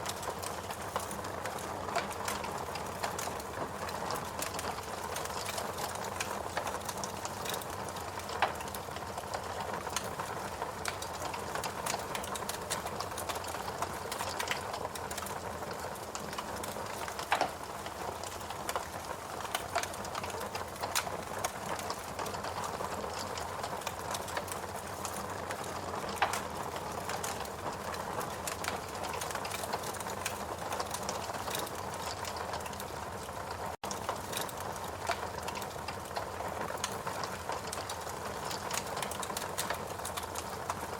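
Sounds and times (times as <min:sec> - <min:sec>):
wood fire crackling: 0:00.0 - 0:40.9
fire pops: 0:00.1 - 0:08.8, 0:10.8 - 0:27.4.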